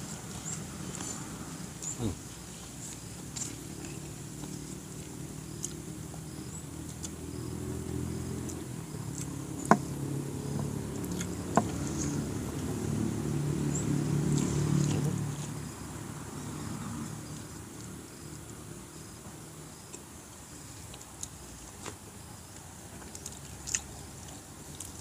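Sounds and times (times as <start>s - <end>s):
low rumbling mouth noise: 0.0s - 2.8s
man chewing food: 0.0s - 12.8s, 19.8s - 25.0s.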